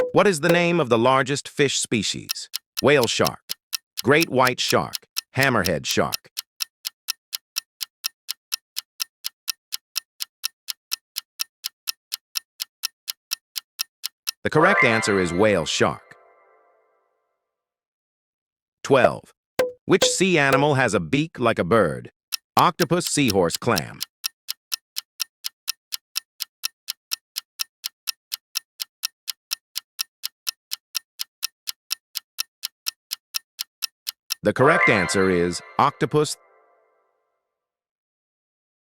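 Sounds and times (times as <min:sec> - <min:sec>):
clock ticking: 0:00.0 - 0:00.7, 0:02.0 - 0:14.5, 0:19.6 - 0:20.7, 0:22.3 - 0:35.1.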